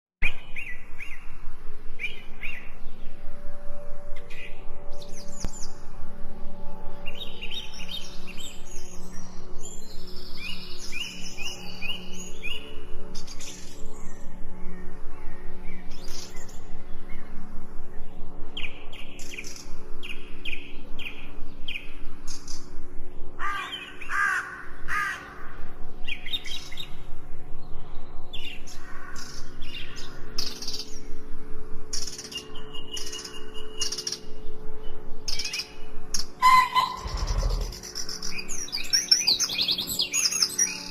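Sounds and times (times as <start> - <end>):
steady low drone: 0.4 - 40.9
birds chirping and calling: 35.3 - 40.9
harsh lower bird calls: 36.4 - 40.9.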